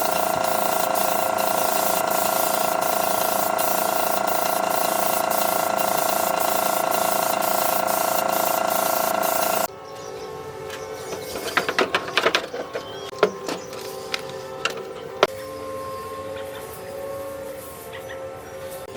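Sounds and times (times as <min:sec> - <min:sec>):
air tool hissing and whining: 0:00.0 - 0:09.7.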